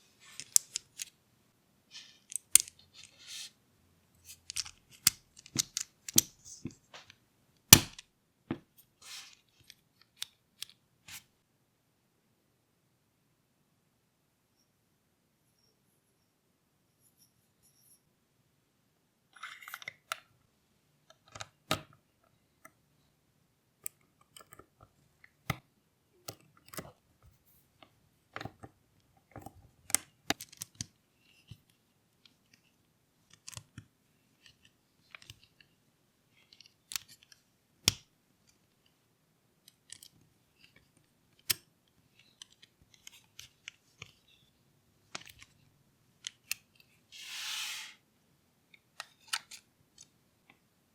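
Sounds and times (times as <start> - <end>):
plastic parts clicking and snapping: 0.4 - 1.1, 2.2 - 3.1, 4.2 - 7.2, 7.8 - 8.0, 27.8 - 35.6, 36.4 - 38.7, 39.6 - 44.5, 45.1 - 45.6, 46.2 - 46.8.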